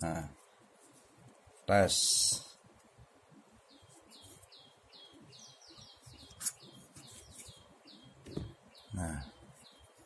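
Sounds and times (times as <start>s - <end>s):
small bird chirping: 3.4s - 10.0s.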